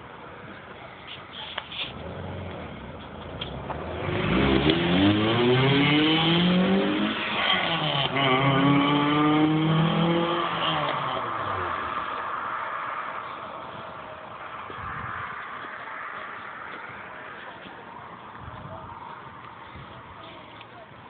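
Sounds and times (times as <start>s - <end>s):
car engine accelerating hard: 1.9s - 14.1s.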